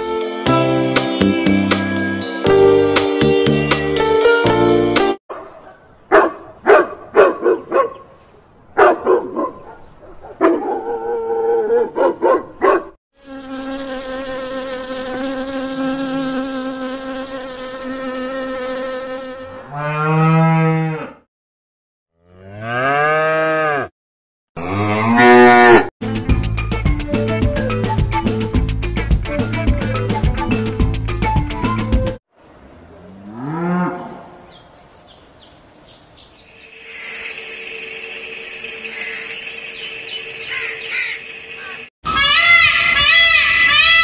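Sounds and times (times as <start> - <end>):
insect buzzing: 13.2 - 19.7
long moo-like calls: 19.7 - 21.2, 22.2 - 23.9.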